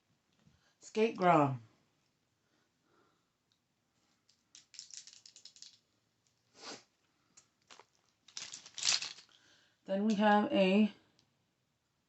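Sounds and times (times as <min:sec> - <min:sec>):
plastic packaging rustle: 0:07.6 - 0:09.4.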